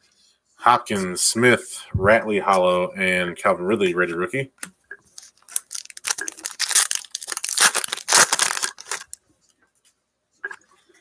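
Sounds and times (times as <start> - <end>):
foil wrapper tearing and crinkling: 5.2 - 9.2.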